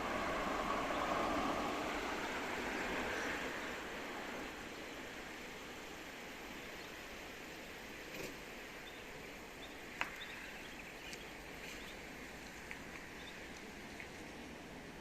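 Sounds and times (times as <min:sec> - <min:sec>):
wind: 0:00.0 - 0:15.0
small birds chirping: 0:08.8 - 0:12.0.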